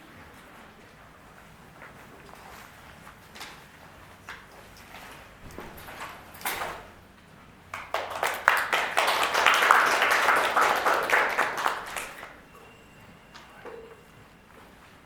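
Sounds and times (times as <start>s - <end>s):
audience applauding: 7.7s - 12.6s.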